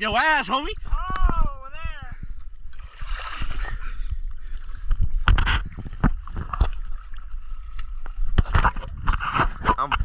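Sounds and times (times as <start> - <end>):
water sloshing around people wading: 0.0 - 10.0
wind rumbling on microphone: 0.0 - 10.0
sharp splashes: 2.7 - 3.8.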